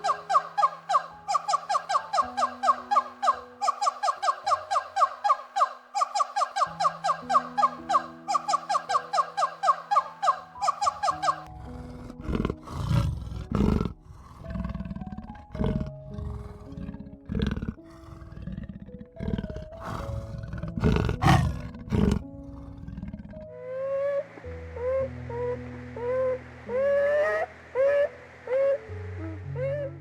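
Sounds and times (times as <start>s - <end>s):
plucked background music: 0.0s - 17.8s, 18.9s - 30.0s
lion roaring and grunting: 11.5s - 23.5s.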